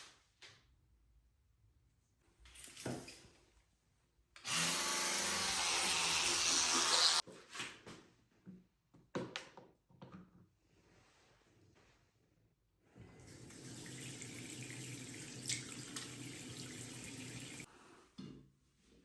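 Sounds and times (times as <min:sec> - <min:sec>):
small electric motor humming: 0:04.5 - 0:07.2.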